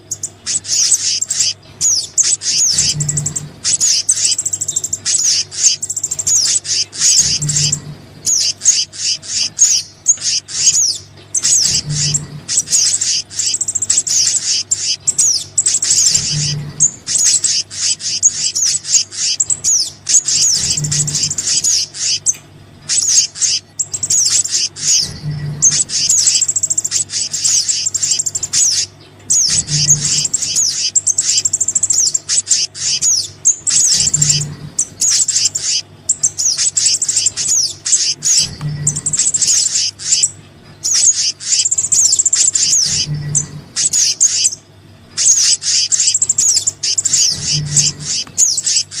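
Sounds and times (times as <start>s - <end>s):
low hum: 0.0s - 49.0s
songbirds chirping and trilling: 0.0s - 49.0s
soft low pulse: 2.7s - 3.7s, 11.6s - 12.9s, 24.9s - 26.4s.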